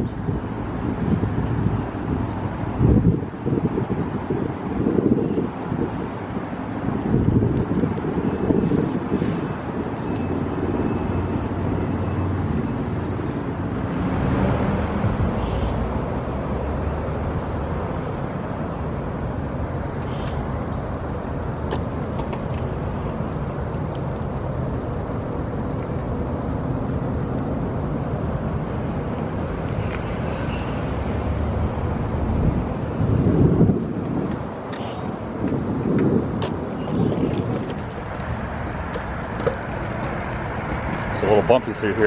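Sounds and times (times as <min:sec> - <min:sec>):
wind on microphone: 0:00.0 - 0:20.0, 0:31.2 - 0:42.0
scooter rolling on road: 0:00.0 - 0:42.0.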